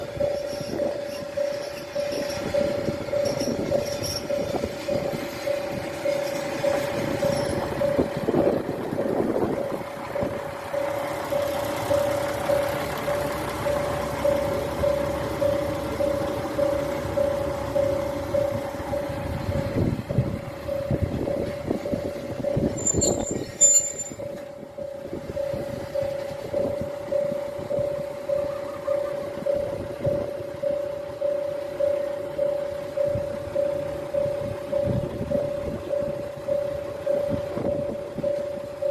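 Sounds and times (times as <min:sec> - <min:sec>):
pulsing electronic bell tone: 0:00.0 - 0:08.5, 0:09.6 - 0:38.9
diesel railcars rumbling: 0:00.0 - 0:38.9
high squeal: 0:22.7 - 0:24.3.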